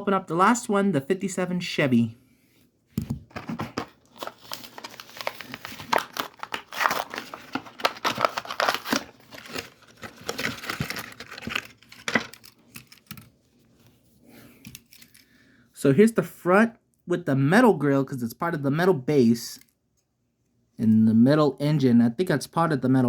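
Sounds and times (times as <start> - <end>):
plastic and cardboard crinkling: 3.0 - 14.0.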